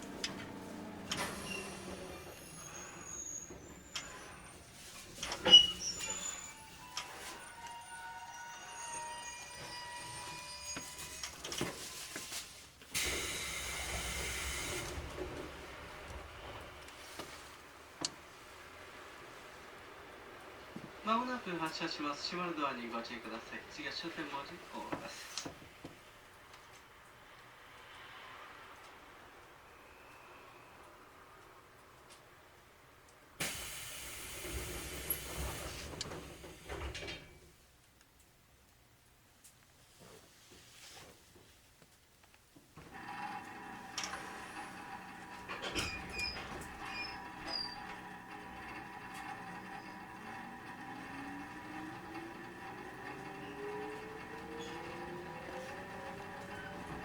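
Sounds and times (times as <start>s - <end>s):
train compressed air release: 12.9s - 15.1s, 33.4s - 36.7s
hiss of air: 33.4s - 36.0s.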